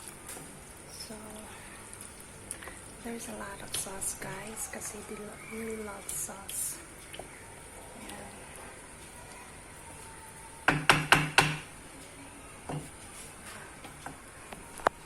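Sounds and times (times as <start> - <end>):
utensil knocking against cookware: 10.7 - 11.7.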